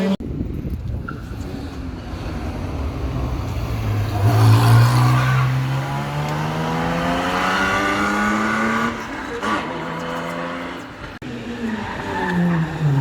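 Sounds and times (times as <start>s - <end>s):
rally car engine accelerating: 1.7s - 13.0s.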